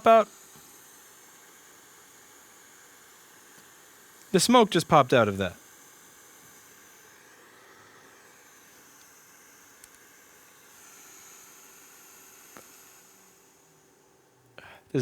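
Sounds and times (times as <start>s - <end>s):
faint room hiss: 4.3s - 5.6s
faint click: 9.8s - 10.0s.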